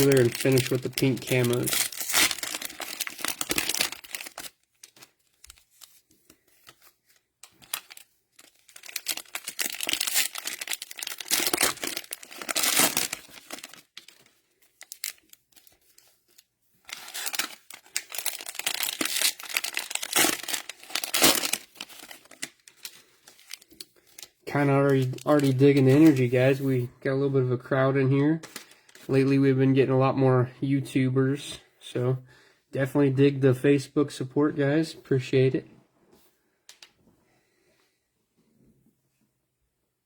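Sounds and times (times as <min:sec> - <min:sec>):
cellophane wrappers crinkling: 0:00.0 - 0:26.8.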